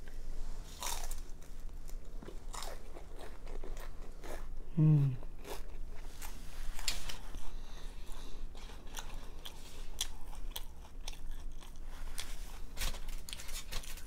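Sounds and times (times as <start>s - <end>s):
crunching and chewing fried food: 0.0s - 14.0s.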